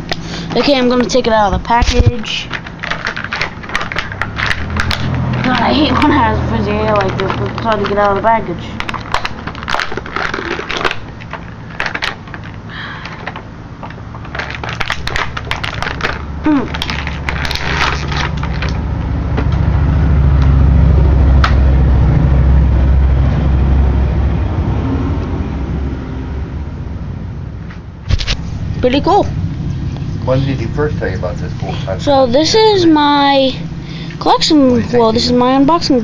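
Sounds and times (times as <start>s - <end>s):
plastic packaging crinkling: 1.9s - 18.8s
sharp plastic clicks: 6.8s - 18.8s
loud low rumble: 14.4s - 36.0s.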